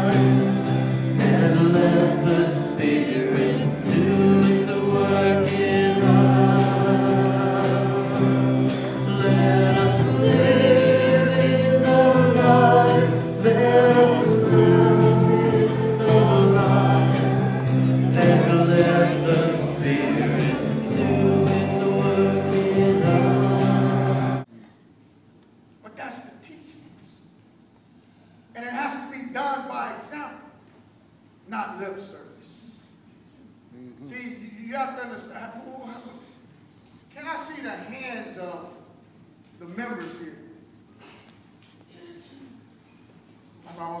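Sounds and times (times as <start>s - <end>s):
gospel choir singing with instruments: 0.0s - 24.5s.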